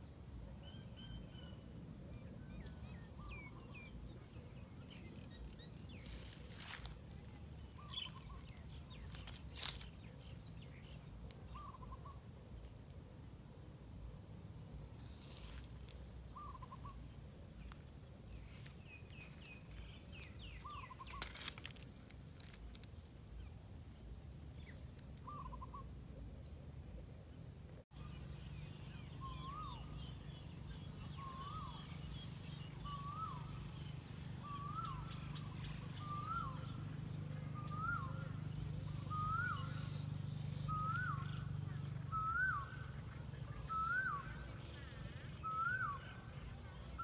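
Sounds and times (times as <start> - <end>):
low steady rumble: 0.0 - 47.0
bird calling: 0.6 - 13.9, 15.0 - 23.0, 24.6 - 26.2, 29.2 - 47.0.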